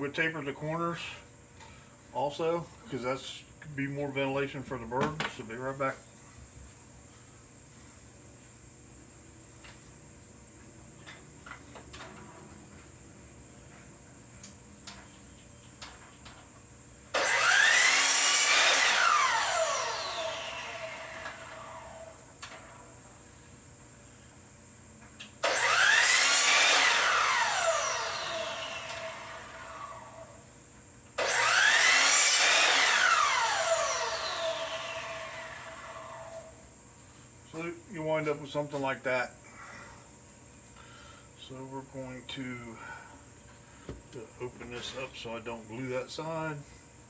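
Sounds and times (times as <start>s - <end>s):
electric power saw cutting wood: 17.1s - 22.7s, 25.4s - 30.4s, 31.2s - 36.6s.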